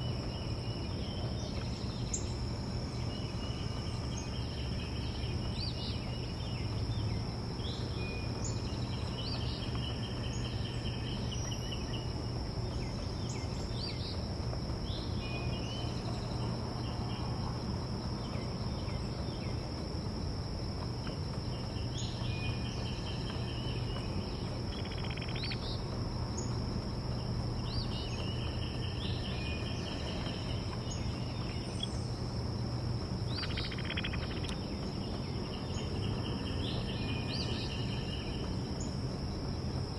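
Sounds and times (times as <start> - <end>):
low outdoor background hum: 0.0 - 39.9
songbirds chirping and trilling: 0.0 - 39.9
high-pitched insect drone: 27.6 - 38.6.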